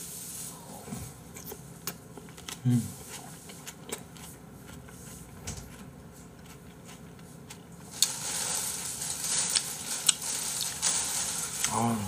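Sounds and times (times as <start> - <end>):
steady hiss: 0.0 - 0.8, 7.9 - 12.0
wet chewing sounds: 1.3 - 8.1.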